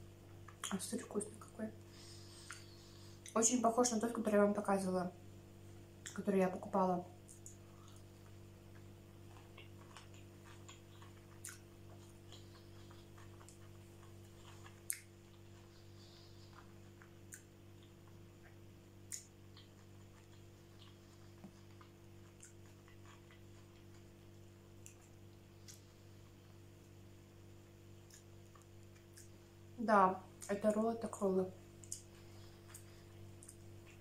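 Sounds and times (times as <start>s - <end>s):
steady low hum: 0.0s - 34.0s
person chewing: 1.9s - 3.3s, 7.2s - 26.9s, 27.9s - 29.4s, 31.8s - 34.0s.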